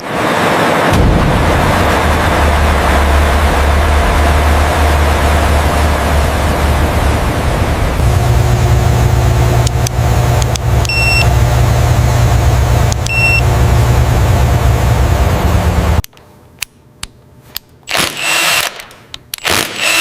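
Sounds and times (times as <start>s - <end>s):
heavy engine running: 0.0s - 16.0s
clicks: 9.5s - 11.3s, 12.8s - 13.4s
short high beeps: 10.8s - 11.3s, 13.0s - 13.4s.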